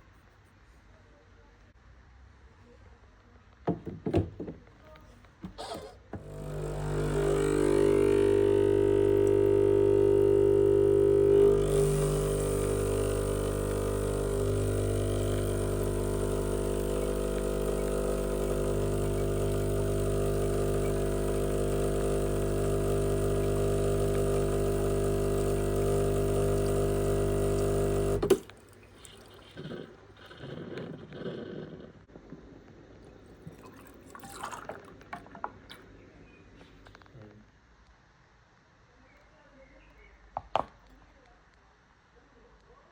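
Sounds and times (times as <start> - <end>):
coffee machine humming: 5.4 - 29.5.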